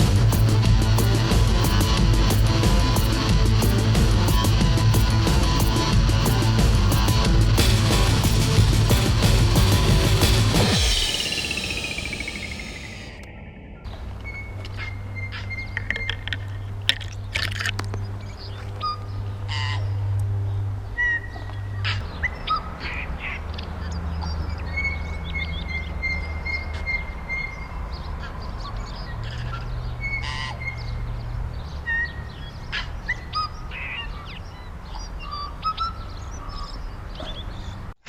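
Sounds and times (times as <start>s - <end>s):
steady low hum: 0.0s - 15.3s
birds chirping: 0.0s - 37.9s.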